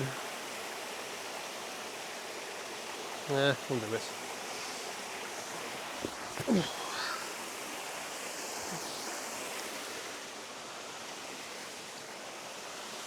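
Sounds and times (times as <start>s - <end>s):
small waterfall rushing: 0.0s - 13.0s.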